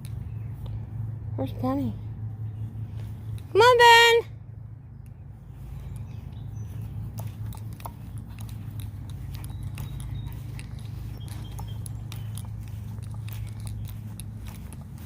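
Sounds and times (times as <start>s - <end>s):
steady low rumble: 0.0s - 3.6s, 4.3s - 15.0s
leaves and twigs crunching underfoot: 5.7s - 15.0s.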